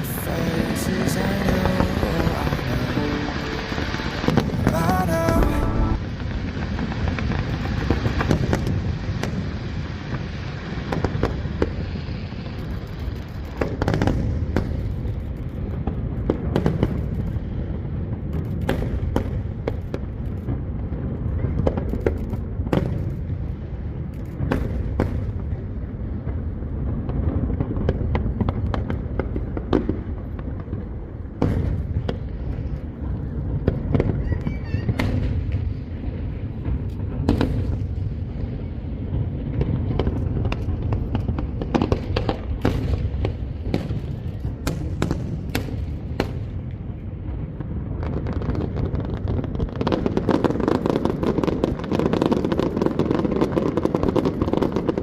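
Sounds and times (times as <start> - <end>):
low rumble: 0.0 - 6.8
fireworks bangs: 0.0 - 55.0.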